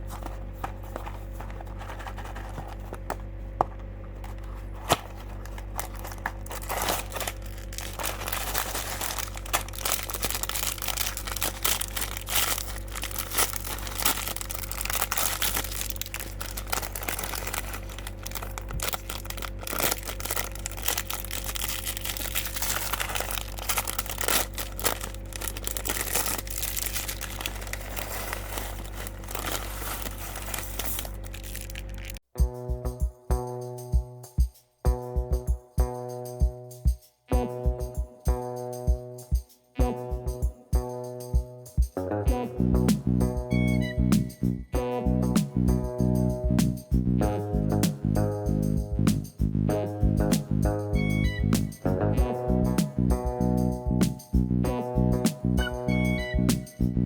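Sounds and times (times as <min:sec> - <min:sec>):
plastic packaging crinkling: 0:00.0 - 0:03.1, 0:04.2 - 0:32.2
faint steady hum: 0:00.0 - 0:32.2.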